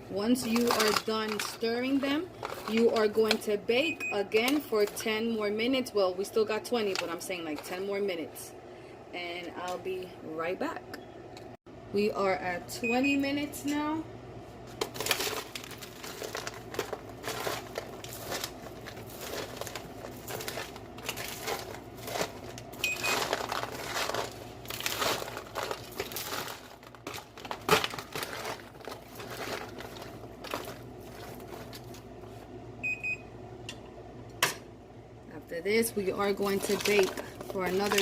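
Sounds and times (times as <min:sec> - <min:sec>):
popcorn rustling on baking sheet: 0:00.1 - 0:03.6, 0:14.6 - 0:32.5, 0:35.8 - 0:38.0.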